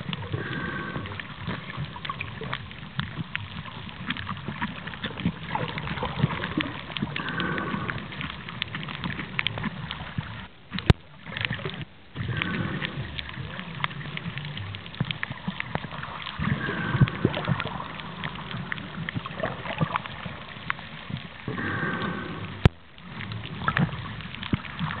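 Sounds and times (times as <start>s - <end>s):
water sloshing and gurgling: 0.0s - 25.0s
bubbles bursting: 4.4s - 20.5s.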